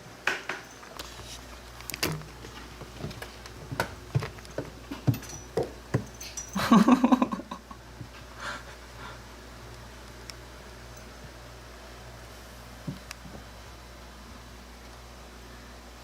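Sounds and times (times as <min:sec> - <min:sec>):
cats scuffling: 0:00.5 - 0:07.2.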